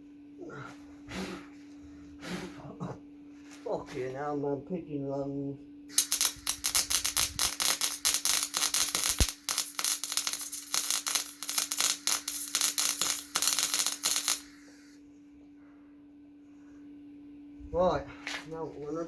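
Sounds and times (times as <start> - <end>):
arc welding crackle: 5.9 - 14.6.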